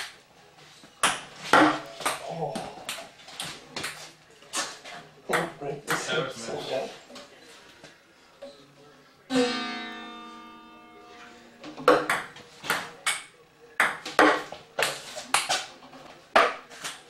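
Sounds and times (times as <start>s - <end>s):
ringing pitched note: 9.3s - 11.4s.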